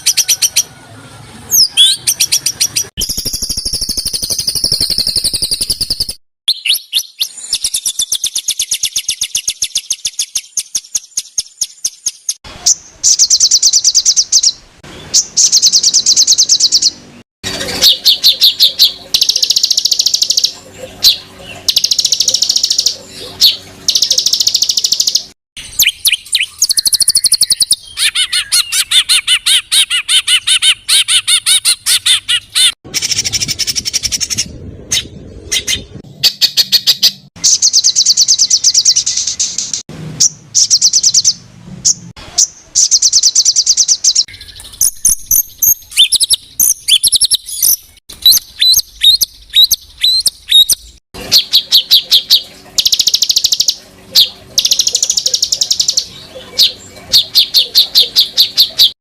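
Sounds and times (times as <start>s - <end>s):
songbird trills and chattering: 1.5s - 17.0s, 17.6s - 34.5s, 35.7s - 58.9s
bird whistled notes: 21.1s - 31.2s, 42.4s - 58.9s.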